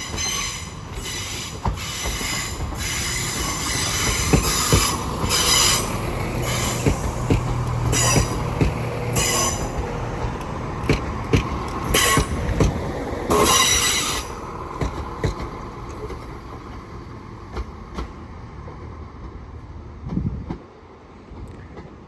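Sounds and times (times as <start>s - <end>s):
train wheels squealing: 0.0s - 9.9s, 11.3s - 12.7s, 13.3s - 14.5s
wheels clicking over rail joints: 0.0s - 18.2s.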